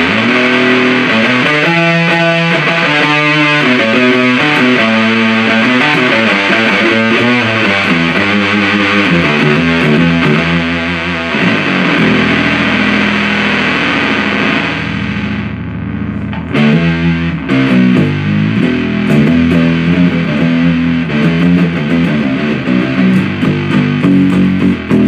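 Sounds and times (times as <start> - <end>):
fuzzed electric guitar riff: 0.0 - 25.0.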